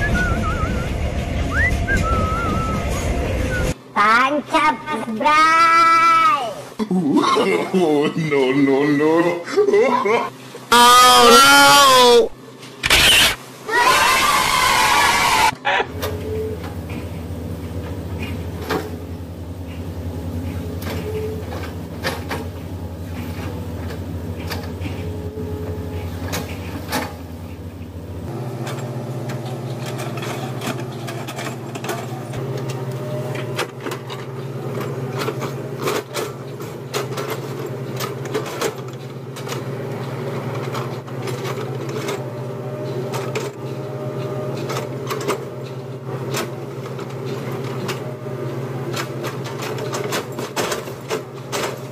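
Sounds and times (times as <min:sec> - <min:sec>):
diesel engine running: 0:00.0 - 0:03.9, 0:14.3 - 0:51.9.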